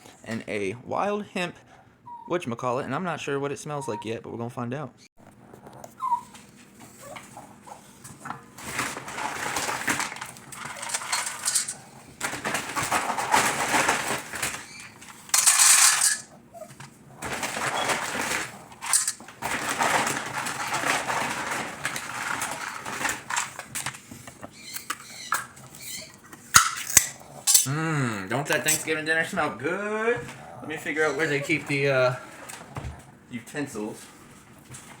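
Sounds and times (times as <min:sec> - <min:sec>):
dishes clattering: 0:06.9 - 0:27.8, 0:28.4 - 0:29.0
packaging rustling: 0:07.9 - 0:27.7.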